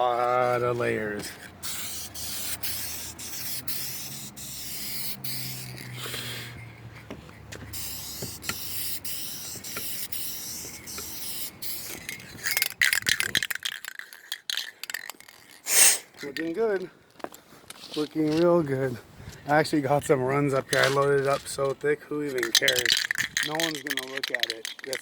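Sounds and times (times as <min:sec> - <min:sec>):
rapid sharp rattling: 0:01.6 - 0:06.3, 0:07.7 - 0:16.5, 0:22.4 - 0:25.0
spray can hissing: 0:01.6 - 0:06.6, 0:07.6 - 0:13.8, 0:15.6 - 0:16.1.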